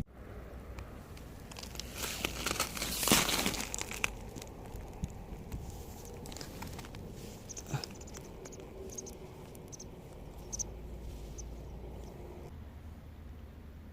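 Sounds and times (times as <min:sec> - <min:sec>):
rustling and crinkling: 0:01.0 - 0:12.2.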